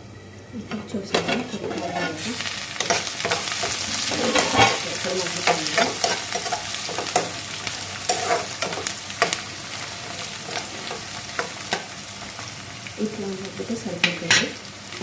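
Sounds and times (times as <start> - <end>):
onions sizzling in hot oil: 1.0 - 15.0
spoon scraping and knocking pan: 1.1 - 12.0.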